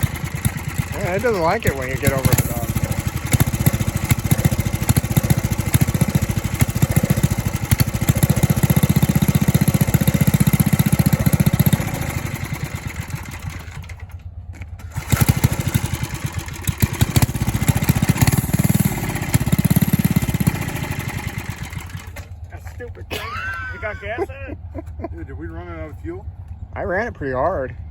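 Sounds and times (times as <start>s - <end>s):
minibike engine sputtering: 0.0s - 27.9s.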